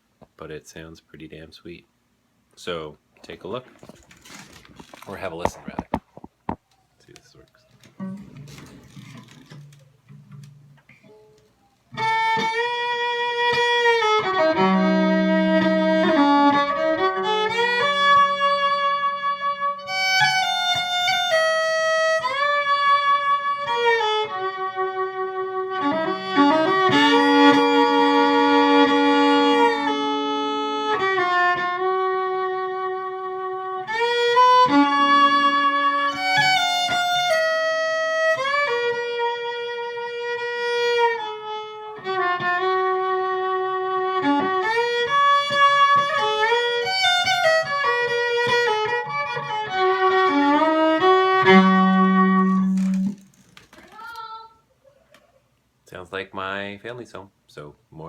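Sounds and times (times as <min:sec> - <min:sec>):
amplified fiddle playing slow tune: 0:11.9 - 0:53.3.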